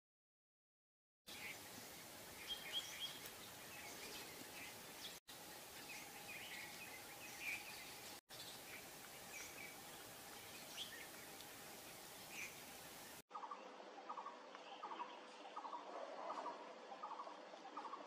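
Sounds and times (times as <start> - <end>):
faint hiss: 1.3 - 13.2
small birds chirping: 1.3 - 18.0.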